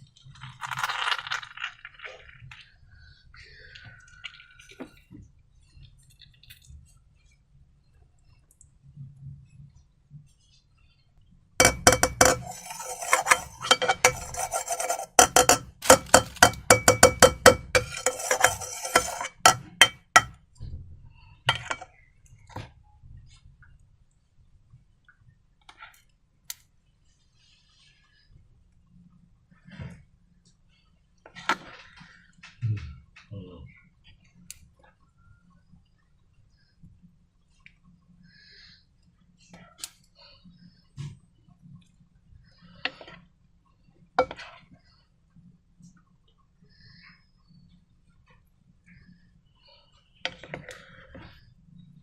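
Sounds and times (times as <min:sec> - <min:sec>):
faint handling sounds: 0:11.6 - 0:20.3
utensil clinking against a bowl: 0:11.6 - 0:20.4, 0:21.5 - 0:21.9.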